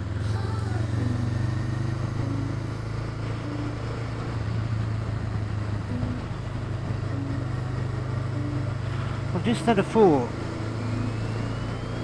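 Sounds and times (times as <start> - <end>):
motorcycle engine humming: 0.0 - 12.0
wind and road noise: 0.0 - 12.0.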